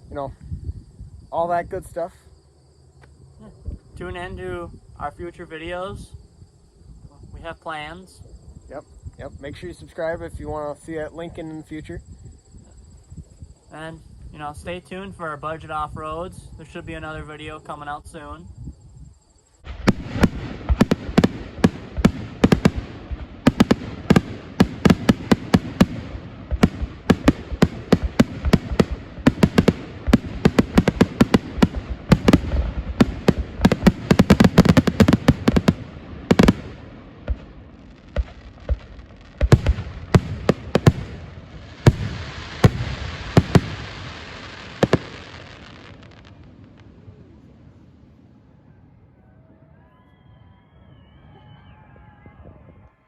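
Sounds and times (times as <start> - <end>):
fireworks bangs and crackles: 19.6 - 47.5.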